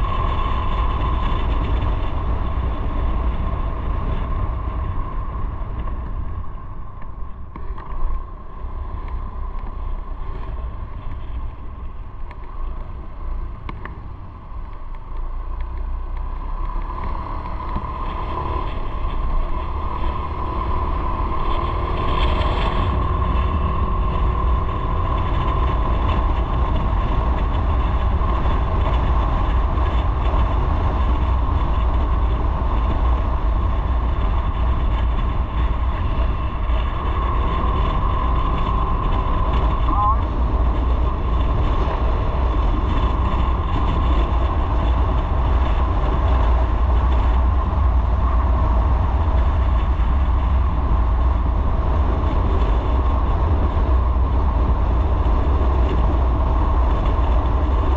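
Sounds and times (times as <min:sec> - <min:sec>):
motorcycle engine running: 0:00.0 - 0:57.9
wind and road noise: 0:00.0 - 0:57.9.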